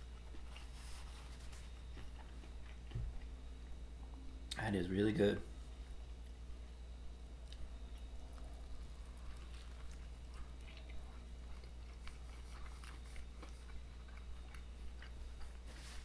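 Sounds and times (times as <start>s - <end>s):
person chewing: 0.0s - 3.4s, 7.4s - 16.0s
low hum: 0.0s - 16.0s.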